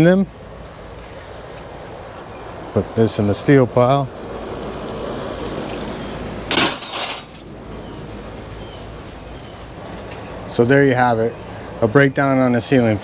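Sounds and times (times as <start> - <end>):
steady background noise: 0.0 - 13.0
scrap steel clattering: 6.5 - 7.4.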